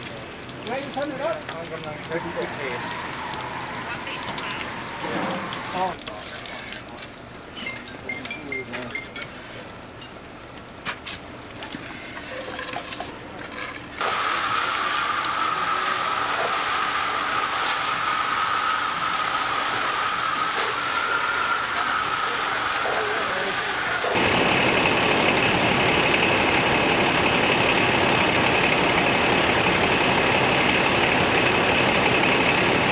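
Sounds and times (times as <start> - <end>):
machine engine whining: 2.0 - 5.9, 14.0 - 32.9.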